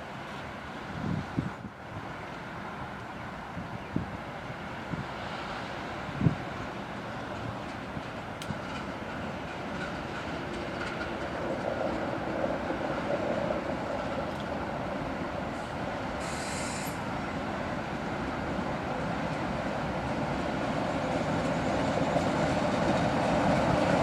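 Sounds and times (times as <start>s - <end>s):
freight train wheels rumbling: 0.0s - 24.0s
brief hiss: 15.6s - 17.1s.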